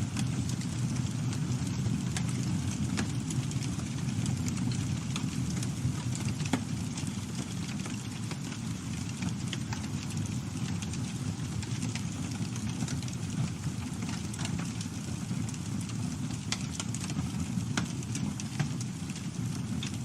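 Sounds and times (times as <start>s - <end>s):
burning wood crackling: 0.0s - 20.0s
flames rumbling: 0.0s - 20.0s.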